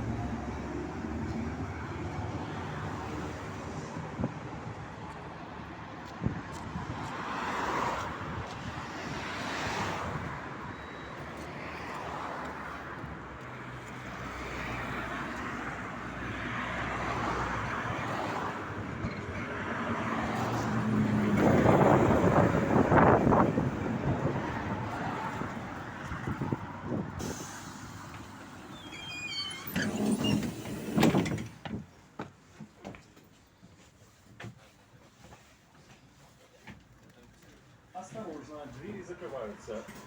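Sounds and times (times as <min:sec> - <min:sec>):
tram wheels rumbling on rails: 0:18.7 - 0:25.6, 0:26.3 - 0:32.0.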